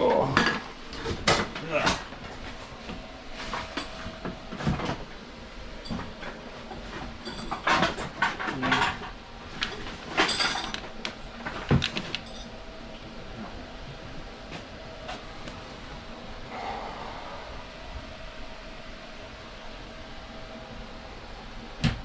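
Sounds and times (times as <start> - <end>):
clattering and knocking: 5.9 - 12.5.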